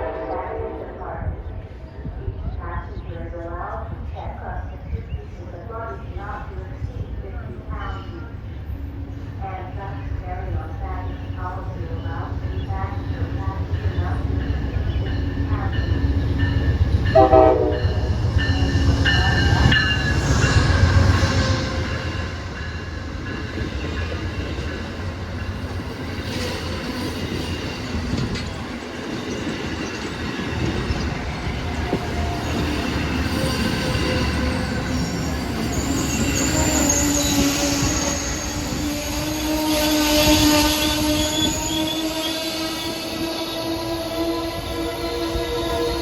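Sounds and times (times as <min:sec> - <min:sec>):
train rumbling past: 0:00.0 - 0:46.0
train wheels and brakes squealing: 0:29.2 - 0:46.0.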